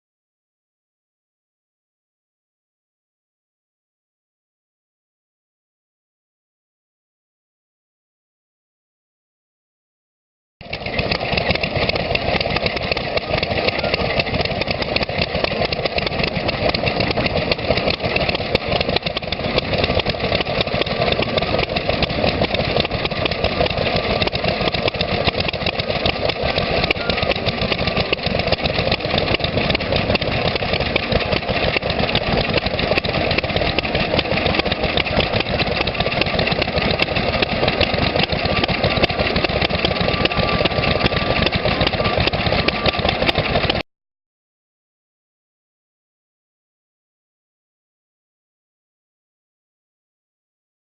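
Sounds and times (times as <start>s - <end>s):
stationary engines running: 10.6s - 43.8s.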